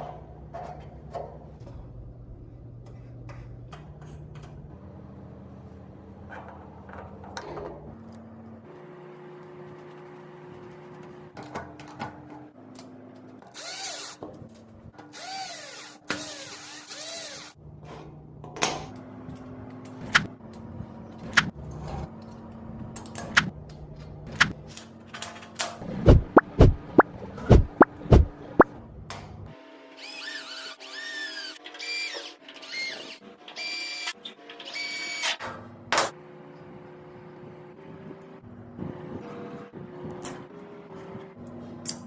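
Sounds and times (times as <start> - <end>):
power drill whirring: 13.5 - 14.2, 15.1 - 17.6, 30.0 - 35.4.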